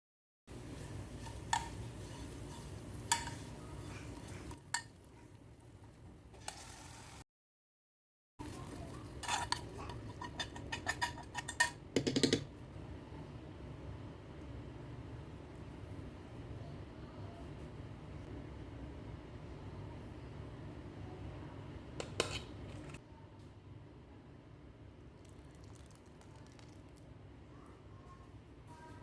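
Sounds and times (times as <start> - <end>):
low steady hum: 8.4 - 29.0
utensils clinking against dishes: 8.8 - 12.5.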